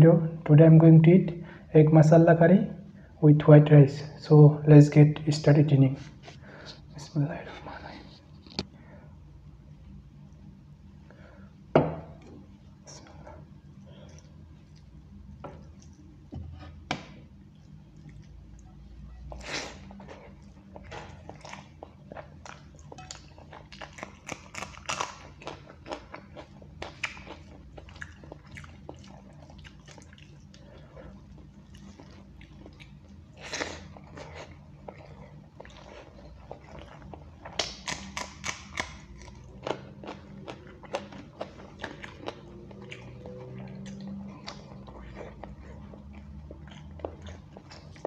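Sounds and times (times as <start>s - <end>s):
low steady hum: 0.0s - 48.0s
man chewing food: 12.0s - 48.0s.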